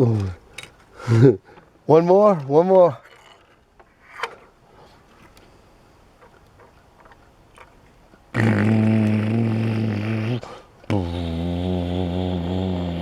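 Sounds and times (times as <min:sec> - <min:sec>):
man imitating engine drone: 0:08.3 - 0:13.0.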